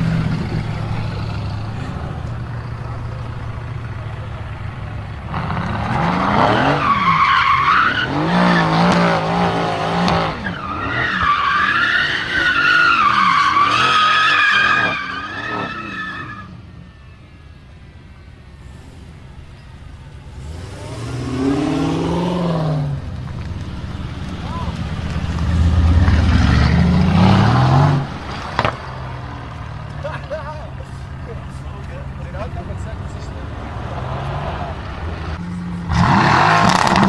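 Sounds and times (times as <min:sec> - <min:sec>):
car engine revving: 0:00.0 - 0:16.6, 0:18.3 - 0:37.0
tyres squealing: 0:05.3 - 0:17.0.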